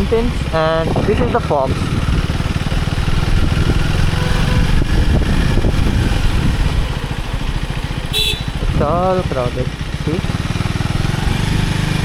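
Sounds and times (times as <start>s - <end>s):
wind noise: 0.0s - 7.4s
motorcycle engine running: 0.0s - 12.0s.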